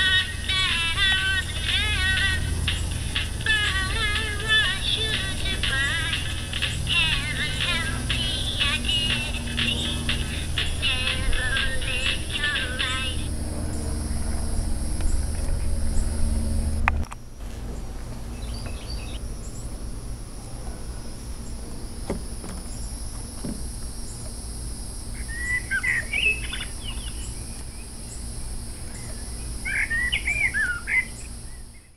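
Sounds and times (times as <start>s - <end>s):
high hiss: 0.0s - 13.3s
low rumble: 0.0s - 19.2s
bird chirping: 0.1s - 14.4s, 18.3s - 19.7s, 25.2s - 31.9s
music: 0.2s - 13.3s.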